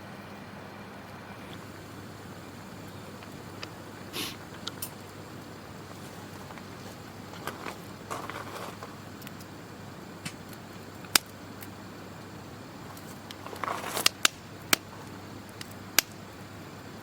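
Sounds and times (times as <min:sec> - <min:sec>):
rustling: 0:01.5 - 0:09.5, 0:12.8 - 0:15.8
sharp clicks and pops: 0:02.8 - 0:09.6, 0:10.2 - 0:11.8, 0:12.9 - 0:16.2.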